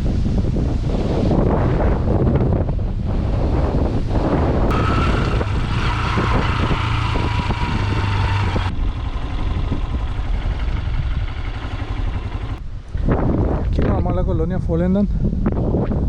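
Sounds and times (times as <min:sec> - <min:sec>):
wind buffeting microphone: 0:00.0 - 0:16.0
motor vehicle running: 0:04.4 - 0:12.7
whining tone: 0:04.7 - 0:12.6.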